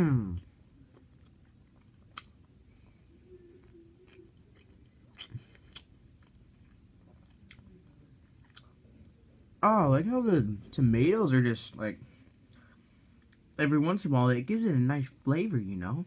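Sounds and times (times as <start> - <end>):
person chewing: 0.3 - 9.2.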